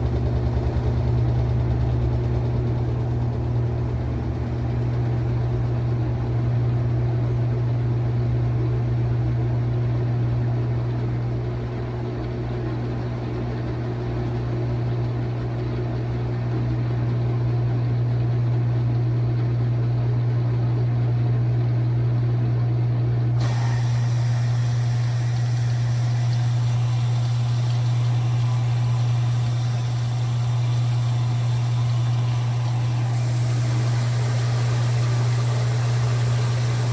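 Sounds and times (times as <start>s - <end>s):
washing machine drum spinning: 0.0s - 36.9s.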